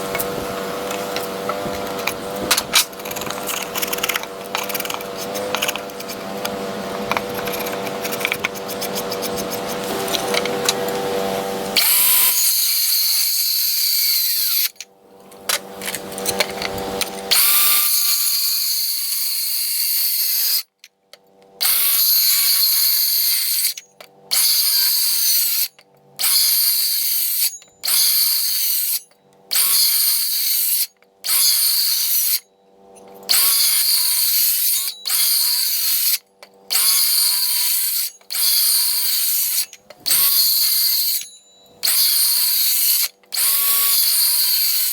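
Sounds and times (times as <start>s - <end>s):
power drill running: 0.0s - 14.8s, 33.3s - 44.9s.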